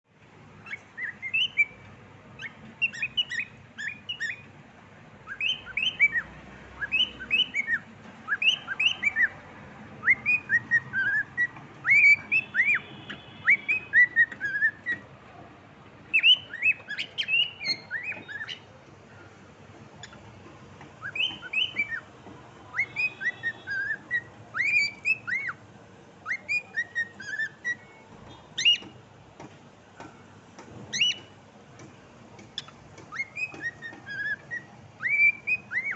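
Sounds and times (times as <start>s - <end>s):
cockatiel whistling: 0.6s - 1.8s, 2.4s - 4.5s, 5.3s - 9.4s, 10.0s - 15.0s, 16.1s - 18.7s, 20.0s - 20.2s, 21.0s - 22.1s, 22.7s - 25.6s, 26.2s - 28.0s, 28.6s - 29.0s, 30.9s - 31.3s, 32.6s - 35.9s.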